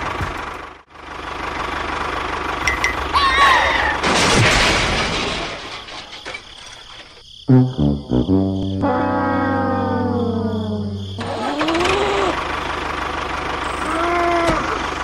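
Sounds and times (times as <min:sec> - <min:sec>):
brass music: 0:07.5 - 0:11.2
small engine throbbing: 0:07.8 - 0:15.0.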